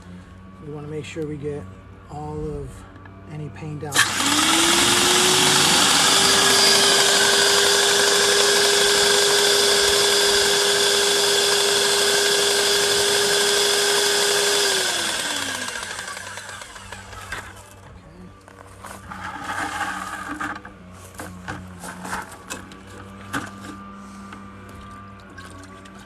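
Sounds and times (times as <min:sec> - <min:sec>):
paint sprayer pump motor hissing: 0:03.9 - 0:17.8.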